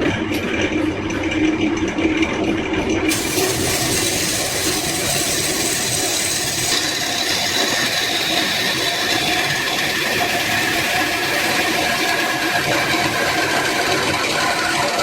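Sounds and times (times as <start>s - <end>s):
power tool running: 3.1s - 15.0s.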